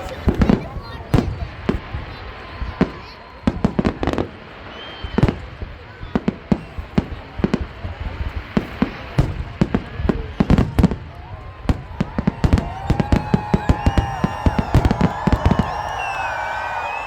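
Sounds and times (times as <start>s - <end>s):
fireworks banging and popping: 0.0s - 17.0s.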